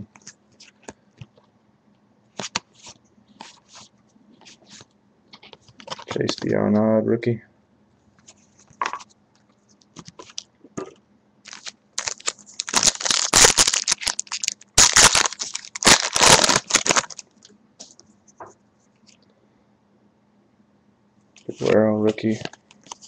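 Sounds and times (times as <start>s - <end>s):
wrapper tearing and crinkling: 11.4s - 17.3s.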